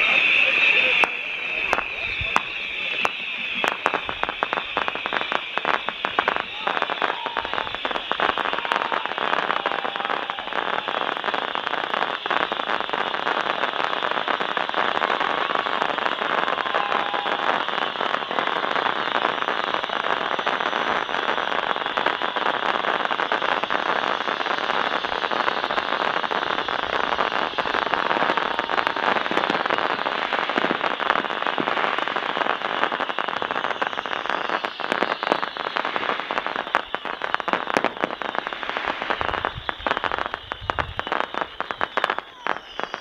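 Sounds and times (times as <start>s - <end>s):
fireworks crackling: 0.0s - 43.0s
low firework boom: 0.9s - 5.1s.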